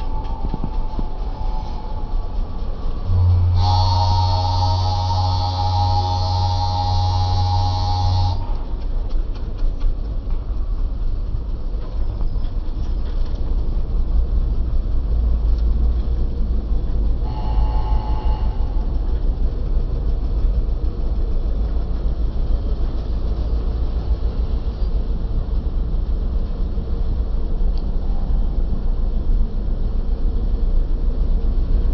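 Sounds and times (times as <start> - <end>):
short pitched tone: 0.0 - 8.6, 17.3 - 18.9
passenger train rumbling: 0.0 - 31.9.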